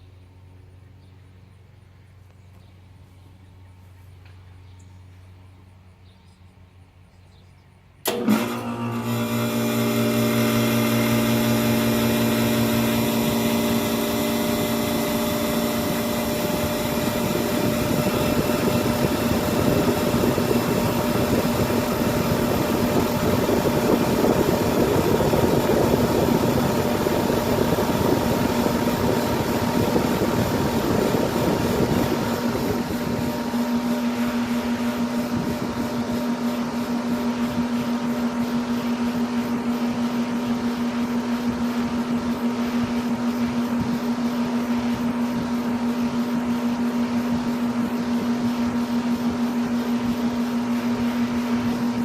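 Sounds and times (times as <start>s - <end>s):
compressor humming: 7.9s - 52.0s.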